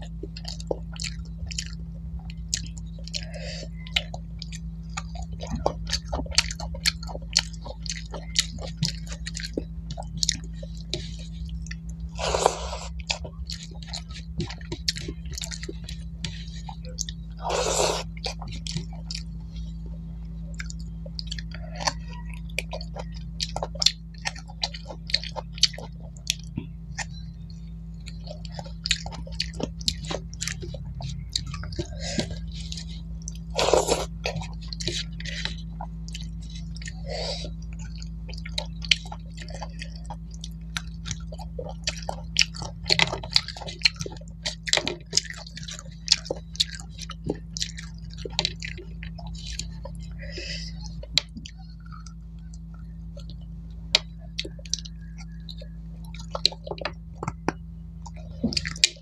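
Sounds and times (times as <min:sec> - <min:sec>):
mouth clicks and smacks: 0:00.0 - 0:59.0
person chewing food: 0:00.0 - 0:59.0
steady low hum: 0:00.0 - 0:59.0.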